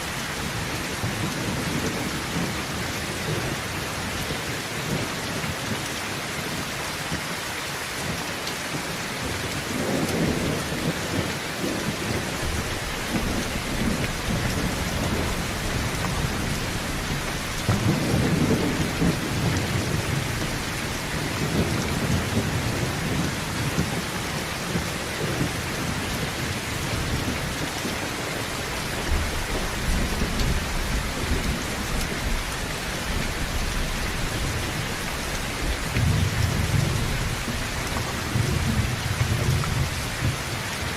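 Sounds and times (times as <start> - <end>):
heavy rain on a tin roof: 0.0 - 40.9
thunder rumbling: 9.3 - 40.9.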